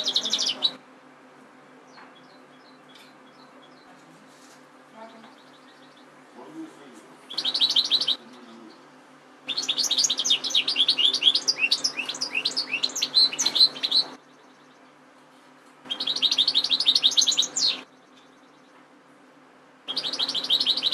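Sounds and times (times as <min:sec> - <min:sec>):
goldfinch singing: 0:00.0 - 0:00.8, 0:05.0 - 0:06.1, 0:07.3 - 0:08.9, 0:09.5 - 0:14.9, 0:15.9 - 0:18.8, 0:19.9 - 0:20.9
faint low hum: 0:00.0 - 0:20.9.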